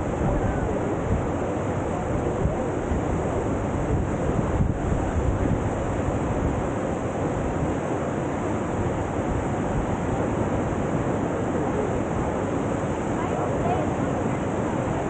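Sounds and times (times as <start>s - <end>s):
whitewater roaring: 0.0s - 15.0s.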